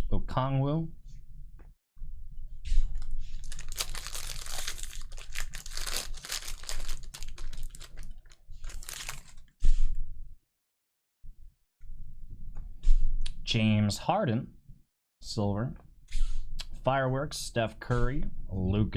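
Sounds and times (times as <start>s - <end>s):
foil wrapper tearing and crinkling: 3.3s - 9.5s.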